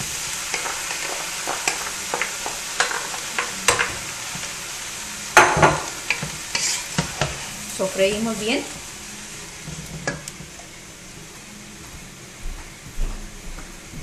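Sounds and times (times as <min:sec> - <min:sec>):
vegetables sizzling in oil: 0:00.0 - 0:12.1
wooden spoon scraping pot: 0:06.5 - 0:07.4.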